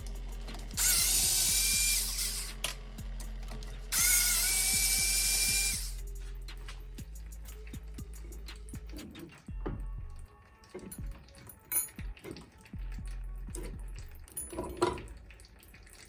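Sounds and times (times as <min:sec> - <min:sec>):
power tool whining: 0:00.0 - 0:06.0
background music with steady beat: 0:00.0 - 0:16.0.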